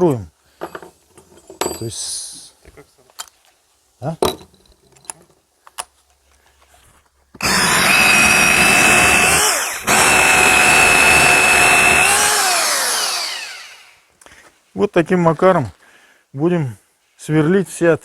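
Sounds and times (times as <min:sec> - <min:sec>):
rotary hammer drilling into brick: 0:07.4 - 0:13.9.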